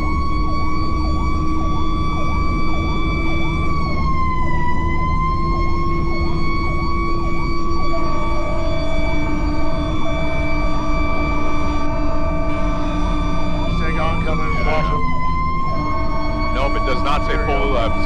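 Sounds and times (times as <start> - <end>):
steady high siren tone: 0.0 - 18.0
yelping siren: 0.0 - 18.0
horn-like tone: 12.5 - 18.0.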